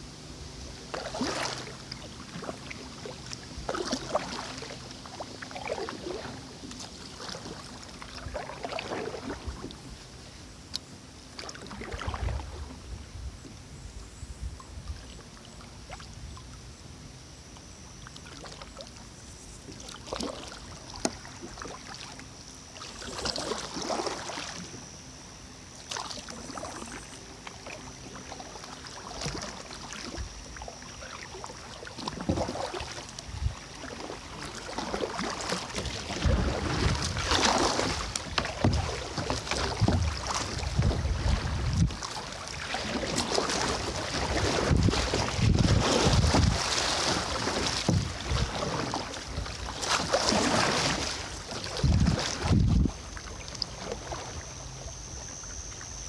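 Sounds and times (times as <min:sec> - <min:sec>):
kayak paddle splashing in water: 0:00.0 - 0:10.2, 0:11.2 - 0:12.8, 0:18.0 - 0:24.8, 0:25.7 - 0:55.8
wind buffeting microphone: 0:36.2 - 0:42.0, 0:44.1 - 0:46.8, 0:47.4 - 0:49.6, 0:51.7 - 0:53.0.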